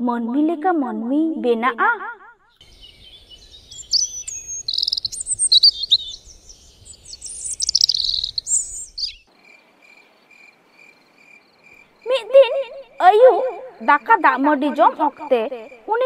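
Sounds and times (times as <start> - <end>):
songbirds chirping and twittering: 2.6 - 12.1
faint insect chirp: 2.6 - 16.0.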